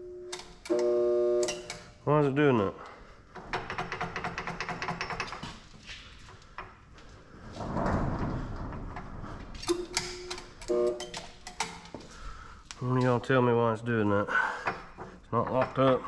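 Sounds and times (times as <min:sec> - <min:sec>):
knocks: 0:03.4 - 0:05.6, 0:14.6 - 0:16.0.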